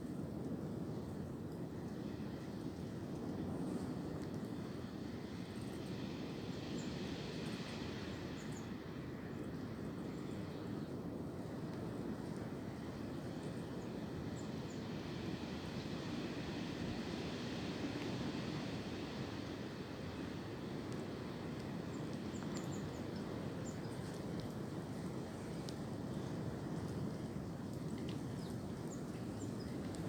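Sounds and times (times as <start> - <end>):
wind through tree branches: 0.0 - 30.0.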